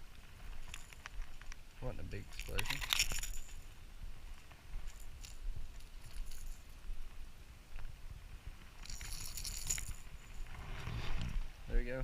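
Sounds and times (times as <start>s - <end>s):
small clicks and rattles: 0.0s - 3.7s, 4.4s - 6.9s, 8.8s - 10.5s
low rumble on microphone: 9.8s - 12.0s.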